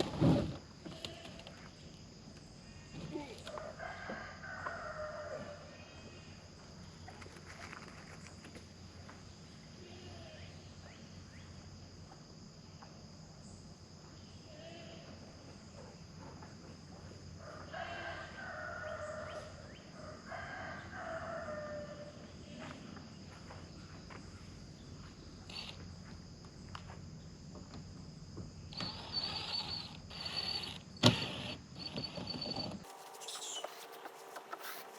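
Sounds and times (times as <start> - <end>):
rooster crowing: 3.4 - 5.8, 17.4 - 22.2
high insect buzz: 28.6 - 34.9
fowl calling: 32.9 - 34.9.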